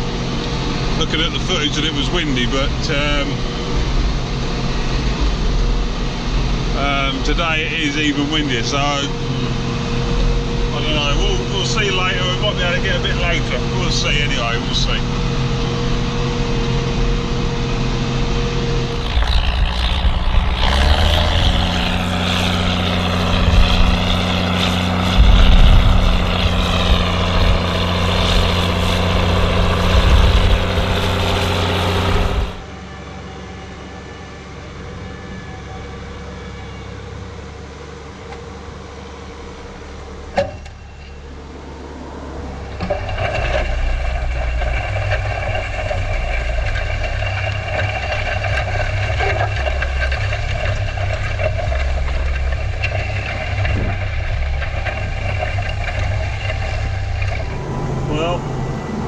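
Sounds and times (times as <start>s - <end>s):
tractor diesel engine running: 0.0s - 32.7s, 42.8s - 59.0s.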